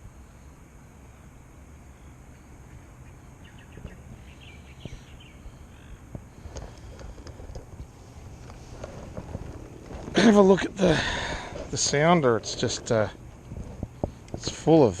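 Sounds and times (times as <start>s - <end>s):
low outdoor rumble: 0.0s - 15.0s
bird chirping: 1.9s - 6.1s.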